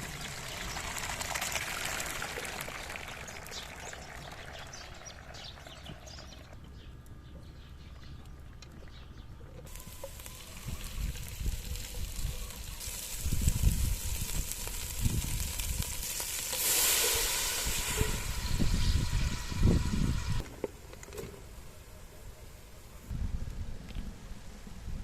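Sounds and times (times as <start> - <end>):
meat sizzling in a pan: 9.7 - 20.4.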